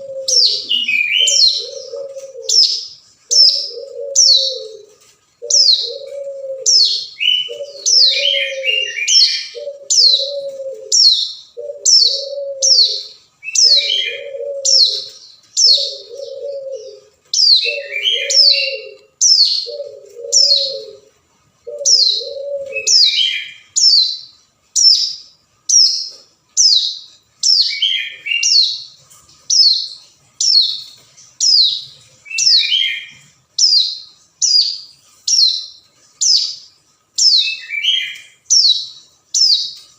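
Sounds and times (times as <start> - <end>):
bird chattering: 0.0 - 21.1.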